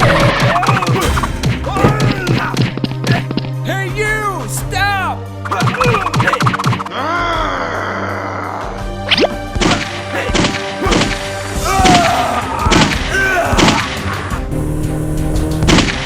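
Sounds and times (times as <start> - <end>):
background music: 0.0 - 16.0
thuds and knocks: 0.1 - 2.9.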